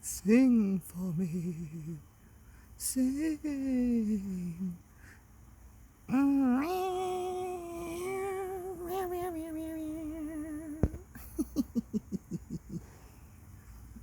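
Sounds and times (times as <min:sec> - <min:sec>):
woman singing with vibrato: 0:06.1 - 0:11.2.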